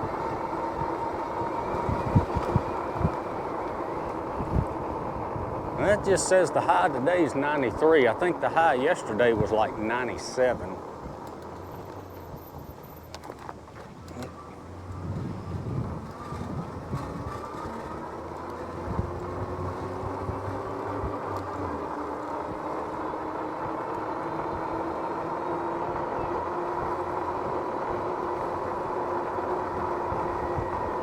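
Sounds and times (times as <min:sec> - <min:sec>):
wind noise: 0:00.0 - 0:06.2, 0:14.8 - 0:18.0
electric hub motor whining: 0:00.0 - 0:31.0.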